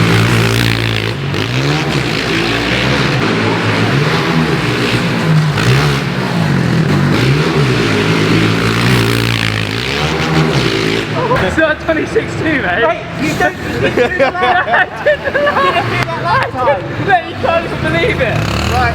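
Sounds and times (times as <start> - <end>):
pit bike engines revving: 0.0 - 18.9.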